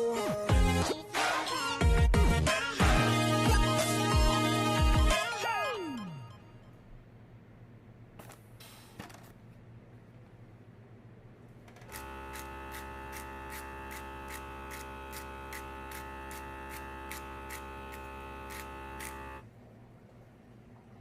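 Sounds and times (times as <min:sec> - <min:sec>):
small electric motor humming: 0:11.9 - 0:19.4.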